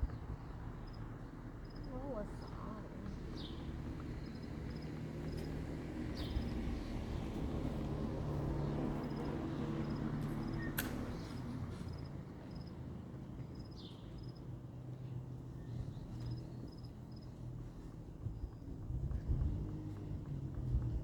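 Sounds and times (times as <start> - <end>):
sharp click: 10.6 - 11.3.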